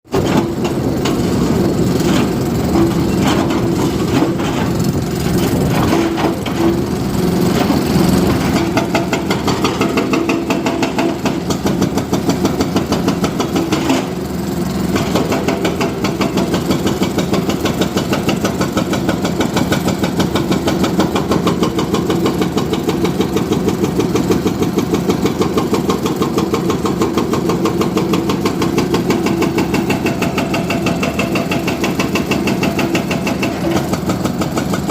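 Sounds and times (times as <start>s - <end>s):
heavy diesel engine running: 0.1s - 34.9s.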